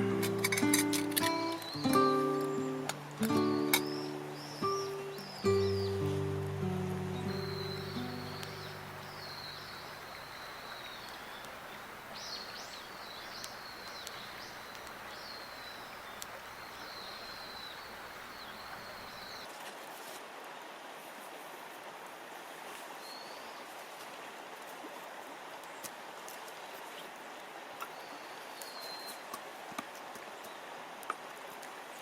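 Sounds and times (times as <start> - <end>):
bird singing warbling song: 0.0 - 19.5, 27.9 - 29.2
steady background hiss: 0.0 - 19.6
faint clicks: 8.3 - 19.4.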